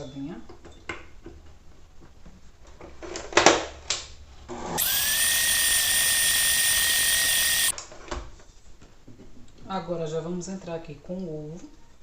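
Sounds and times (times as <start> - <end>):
electric mixer motor running: 4.8 - 7.7.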